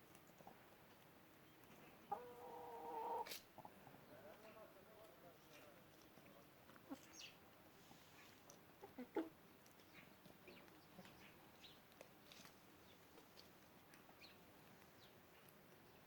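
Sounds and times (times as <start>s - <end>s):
chickens clucking: 1.6s - 4.6s, 6.0s - 11.8s.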